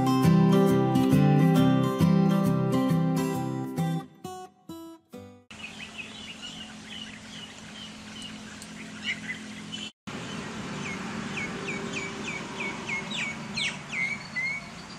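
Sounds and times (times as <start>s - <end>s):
small birds chirping: 5.5s - 14.9s.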